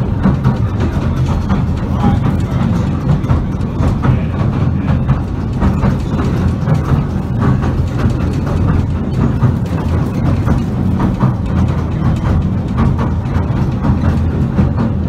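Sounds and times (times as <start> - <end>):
rattles and clicks: 0.0 - 15.0
train carriage rumble: 0.0 - 15.0.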